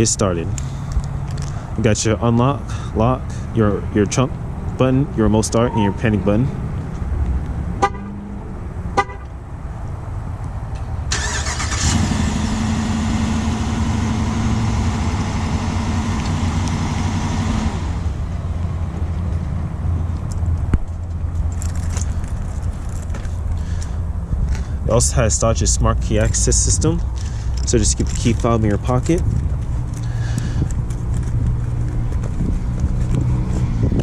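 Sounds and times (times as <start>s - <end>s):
car horn chirp: 7.8s - 8.2s, 9.0s - 9.3s.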